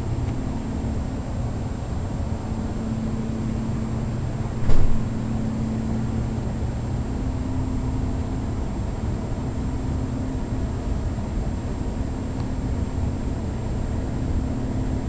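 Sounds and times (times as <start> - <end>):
furnace blower hum: 0.0 - 15.0
short knock: 4.6 - 5.1.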